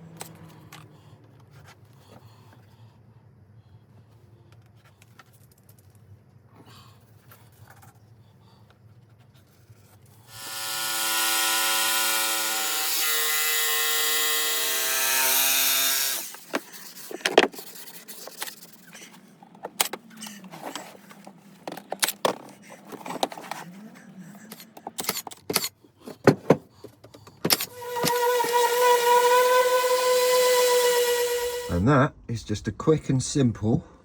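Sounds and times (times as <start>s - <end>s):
power tool cutting wood: 10.3s - 19.0s, 27.5s - 31.8s.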